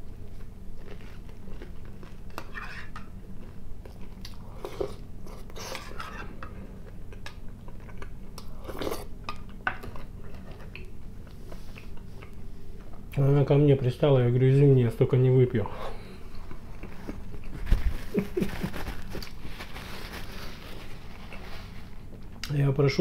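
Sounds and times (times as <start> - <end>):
person chewing with wet smacks: 0.0 - 2.5, 3.2 - 5.8, 6.8 - 13.1, 16.4 - 18.2.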